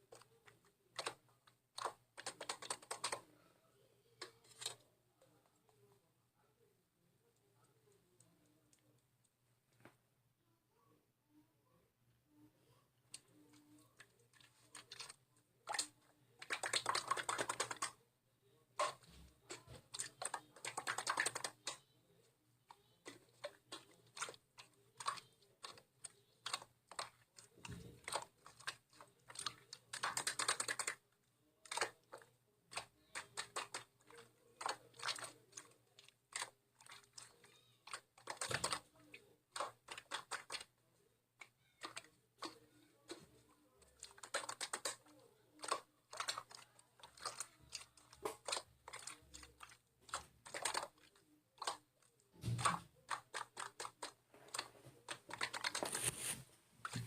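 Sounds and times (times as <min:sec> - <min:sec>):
small clicks and taps: 0:00.1 - 0:03.3, 0:22.7 - 0:31.0, 0:41.4 - 0:57.0.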